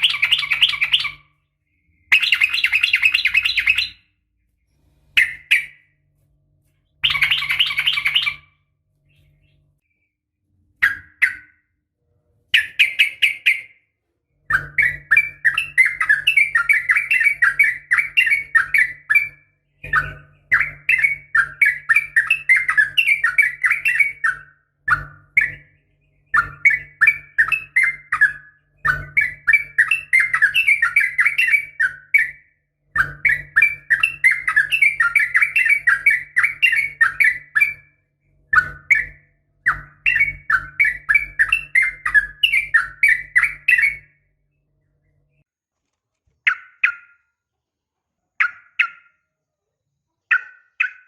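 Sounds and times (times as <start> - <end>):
bird bubbly chattering song: 0.0 - 4.1, 6.9 - 10.0, 14.5 - 37.9, 38.5 - 44.2, 48.4 - 49.2, 50.3 - 51.0
low recording hum: 0.0 - 32.3.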